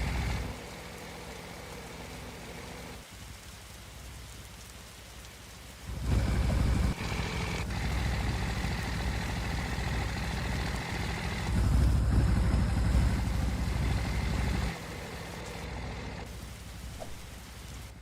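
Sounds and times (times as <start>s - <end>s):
low steady rumble: 5.8s - 18.0s.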